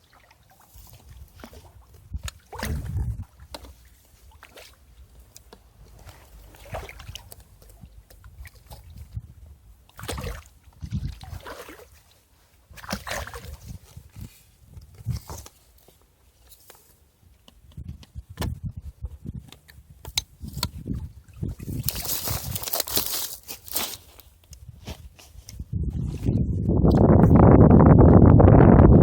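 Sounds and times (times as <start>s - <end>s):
water sloshing and splashing: 0.0s - 16.9s, 20.4s - 24.3s.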